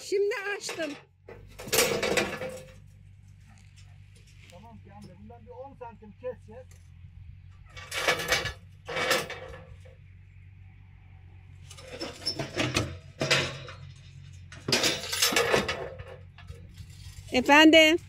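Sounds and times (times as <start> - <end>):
metal clattering and clinking: 0.4 - 5.2, 6.6 - 10.1, 11.6 - 17.6
steady low hum: 1.1 - 18.0.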